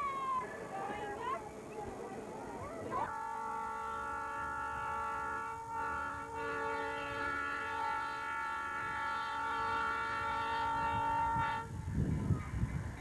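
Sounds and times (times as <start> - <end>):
steam locomotive whistle blowing: 3.1 - 11.7.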